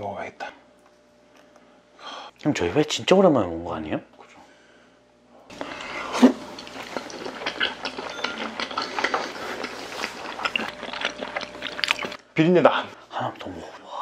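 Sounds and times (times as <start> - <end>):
chewing and wet mouth sounds: 5.5 - 12.3.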